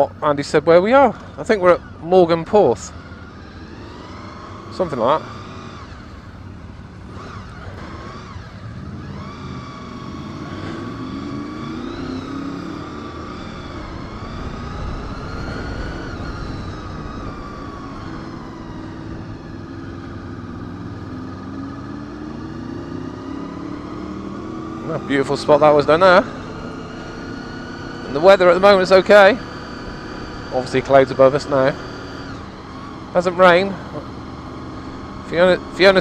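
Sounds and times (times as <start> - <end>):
motorcycle engine accelerating: 0.0 - 36.0
low wind rumble: 11.4 - 36.0.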